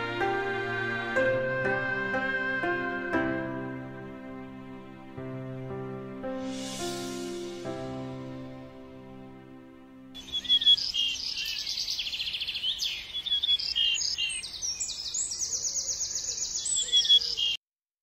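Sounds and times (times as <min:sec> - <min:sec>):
birds chirping and trilling: 0:10.2 - 0:17.6.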